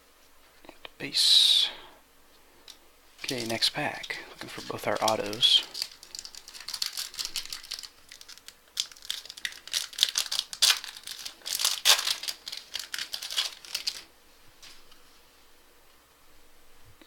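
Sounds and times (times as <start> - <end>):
wrapper tearing and crinkling: 3.2 - 14.1.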